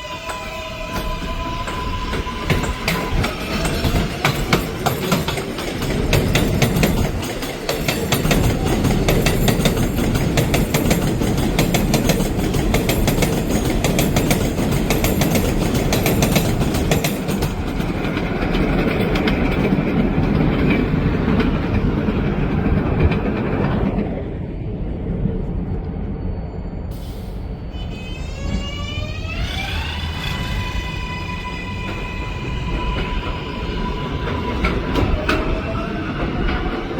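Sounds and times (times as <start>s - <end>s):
train wheels clattering over rail joints: 0.2s - 24.1s.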